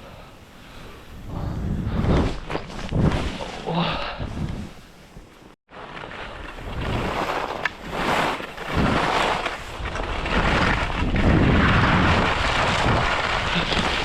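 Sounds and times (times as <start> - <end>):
wind over microphone: 0.0 - 5.3, 6.1 - 14.0
skis hissing through snow: 6.7 - 14.0.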